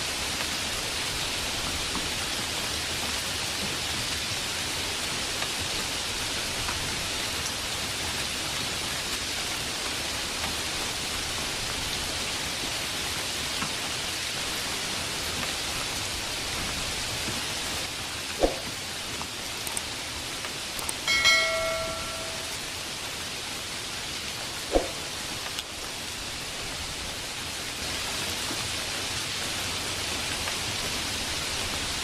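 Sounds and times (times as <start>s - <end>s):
heavy rain: 0.0s - 32.0s
sharp knock: 24.7s - 25.0s.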